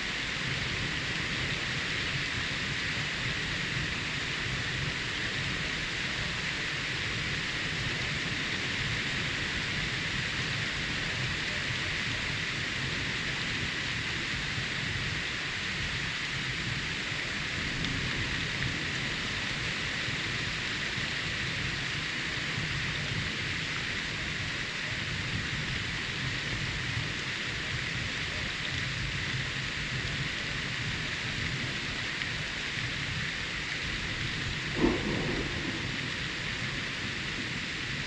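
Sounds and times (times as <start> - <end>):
steady rain: 0.0 - 38.0.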